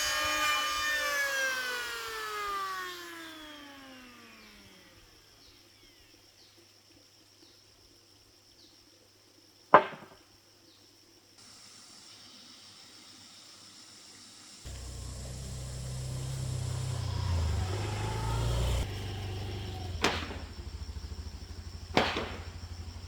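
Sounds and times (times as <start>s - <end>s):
power saw motor winding down: 0.0s - 5.9s, 13.5s - 23.0s
faint steady hiss: 3.5s - 23.0s
sharp knock: 9.8s - 10.2s, 20.0s - 20.5s, 21.9s - 22.6s.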